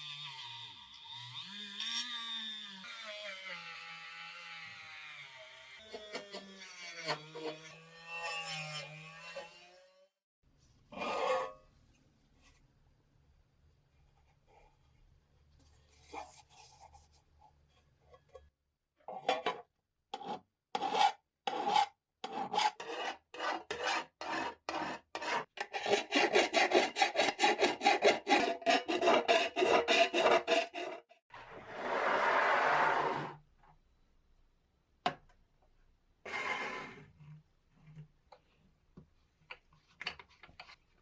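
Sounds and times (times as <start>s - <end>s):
rasping filing strokes: 20.2s - 31.1s.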